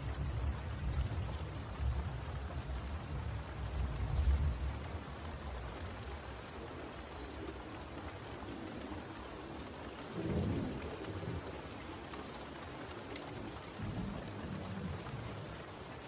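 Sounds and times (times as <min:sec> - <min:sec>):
steady rain falling: 0:00.0 - 0:16.0
distant thunder rumbles: 0:10.2 - 0:11.6, 0:13.7 - 0:15.7.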